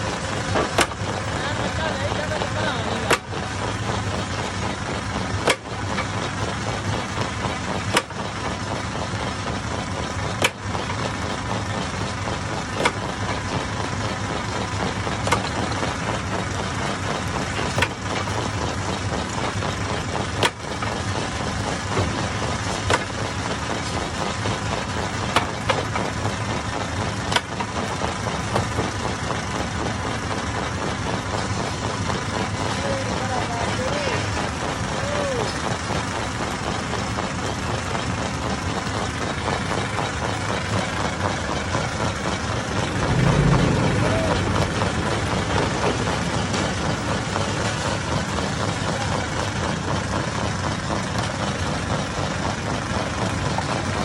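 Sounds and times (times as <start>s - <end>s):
stone crusher mechanical din: 42.6s - 48.0s
sharp knock: 43.0s - 46.7s.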